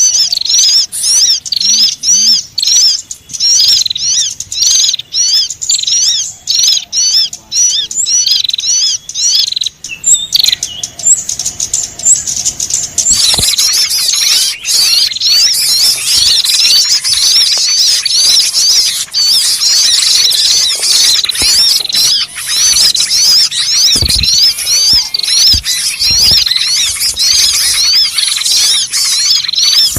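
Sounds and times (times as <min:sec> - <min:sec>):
small birds chirping: 0:00.0 - 0:29.9.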